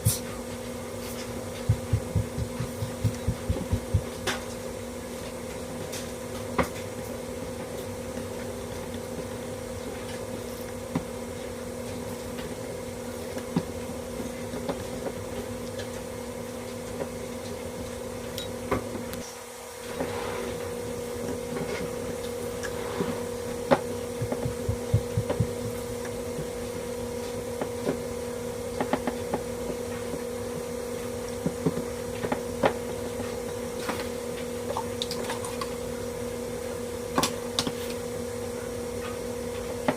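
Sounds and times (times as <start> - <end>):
low two-tone hum: 0.0 - 4.9, 18.2 - 31.3.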